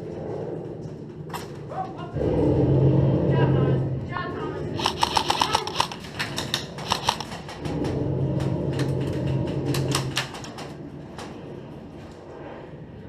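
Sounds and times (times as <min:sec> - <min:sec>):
airsoft gun shots: 0:04.8 - 0:06.0.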